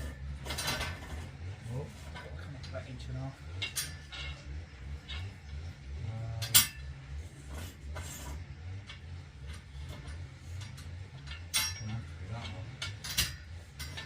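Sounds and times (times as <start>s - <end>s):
light metallic clinks: 2.1s - 5.7s, 8.8s - 14.0s
sharp metal clank: 11.2s - 12.1s.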